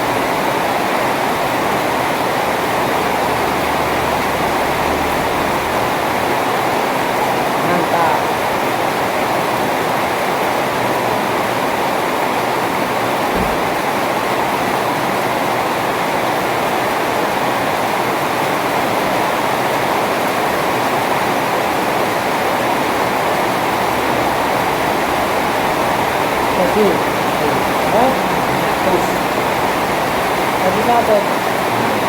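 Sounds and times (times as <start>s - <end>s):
heavy rain pouring: 0.0s - 32.0s
brief low thud: 13.3s - 13.8s.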